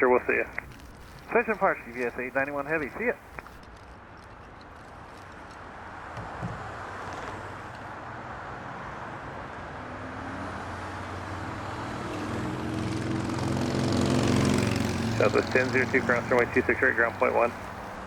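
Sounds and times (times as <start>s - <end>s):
jet engines rushing: 0.0s - 3.6s, 11.4s - 18.0s
low engine hum: 11.0s - 18.0s.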